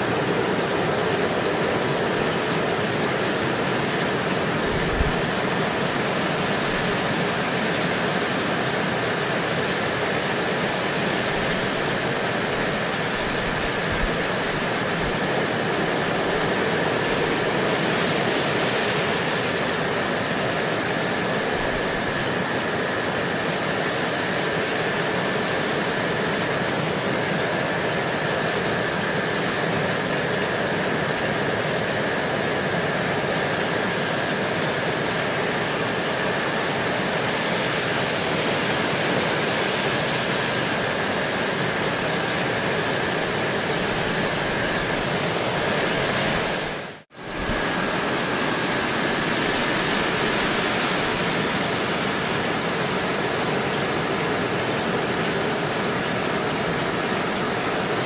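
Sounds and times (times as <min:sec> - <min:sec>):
gentle rain falling: 0:00.0 - 0:58.0.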